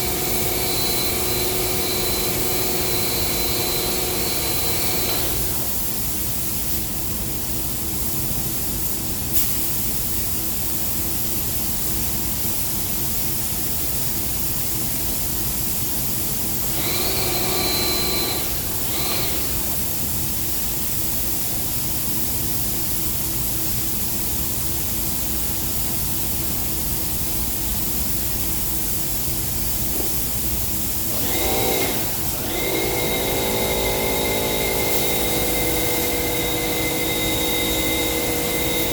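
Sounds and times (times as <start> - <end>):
spray paint hiss: 8.6 - 11.6.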